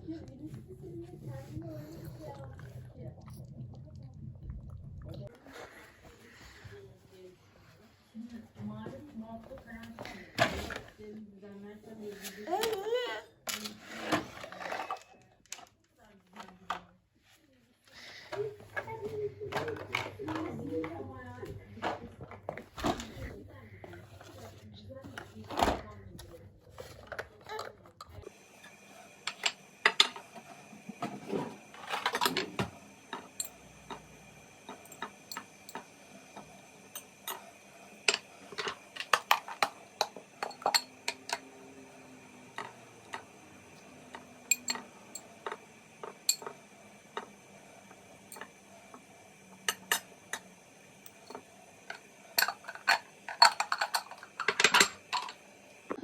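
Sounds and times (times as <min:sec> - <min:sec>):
dishes and cutlery clinking: 0:37.0 - 0:41.5, 0:44.1 - 0:46.6, 0:52.4 - 0:55.4.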